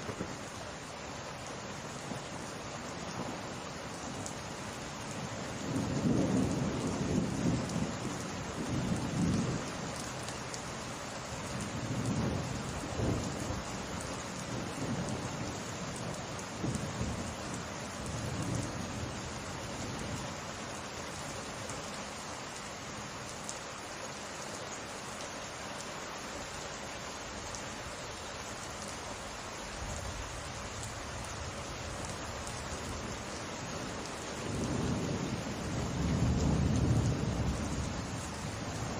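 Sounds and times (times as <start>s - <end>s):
steady rain: 0.0s - 38.9s
rolling thunder: 34.4s - 38.9s.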